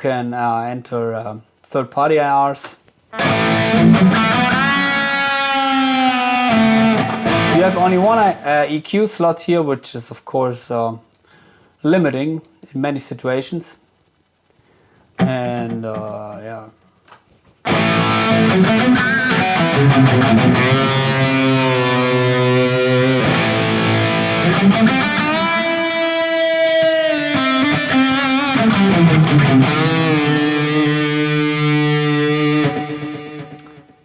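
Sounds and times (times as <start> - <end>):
distorted electric guitar: 3.1 - 8.6, 15.2 - 16.5, 17.6 - 34.0.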